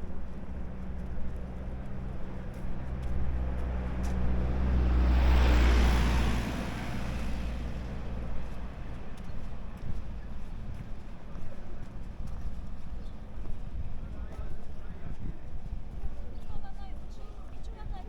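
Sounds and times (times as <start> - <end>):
low engine hum: 0.0 - 18.0
vehicle passing: 0.6 - 11.1.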